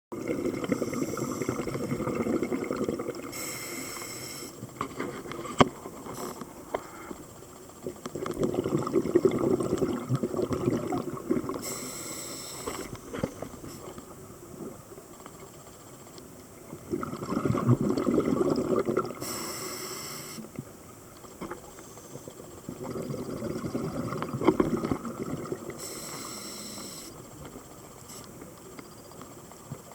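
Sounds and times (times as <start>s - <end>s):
exhaled bubbles rumbling: 0.1s - 3.5s, 7.8s - 11.8s, 16.6s - 19.4s, 22.6s - 25.8s
regulator valve hiss: 3.3s - 4.6s, 11.6s - 13.9s, 19.2s - 20.5s, 25.7s - 27.3s.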